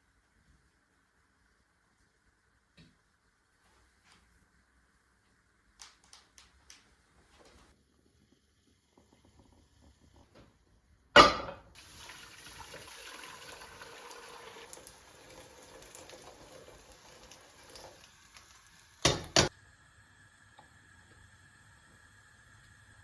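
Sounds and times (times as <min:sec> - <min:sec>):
water running from tap: 0:11.8 - 0:19.5.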